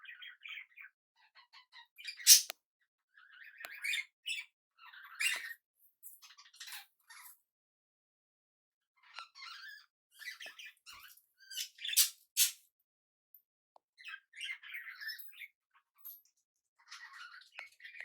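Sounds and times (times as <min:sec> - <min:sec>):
birds chattering and squawking: 0:00.0 - 0:02.5, 0:09.1 - 0:12.6, 0:16.8 - 0:18.0
sharp loud bird calls: 0:02.2 - 0:02.5, 0:11.5 - 0:12.6.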